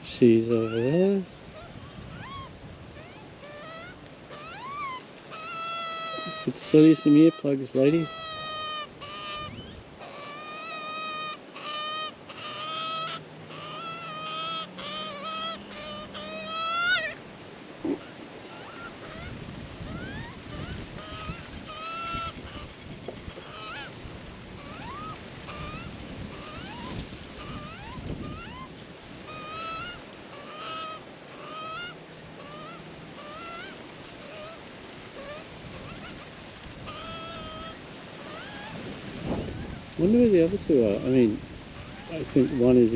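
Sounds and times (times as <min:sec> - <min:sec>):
wind rumble on microphone: 0:01.2 - 0:04.0, 0:09.4 - 0:10.0, 0:17.7 - 0:30.0, 0:35.3 - 0:42.9
magpie squawks: 0:01.6 - 0:07.4, 0:08.0 - 0:17.2, 0:17.8 - 0:24.0, 0:24.6 - 0:34.6, 0:35.2 - 0:38.8.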